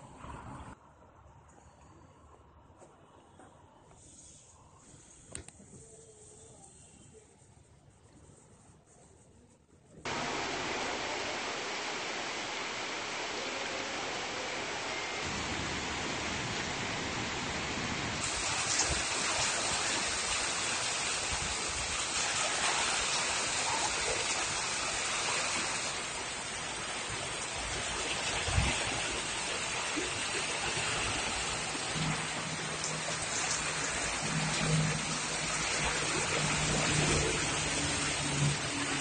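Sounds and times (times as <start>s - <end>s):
heavy rain on a street: 10.1s - 39.0s
lorry driving through water: 10.1s - 39.0s.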